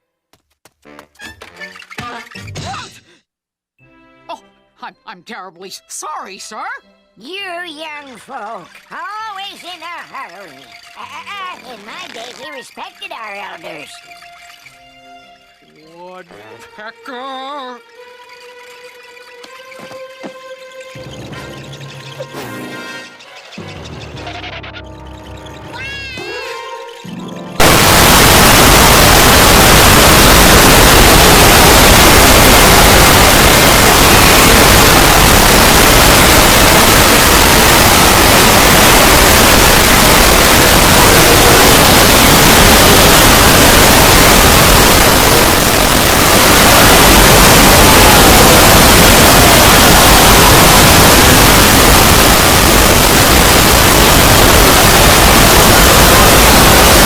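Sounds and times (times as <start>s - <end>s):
white noise static hiss: 27.6s - 57.0s.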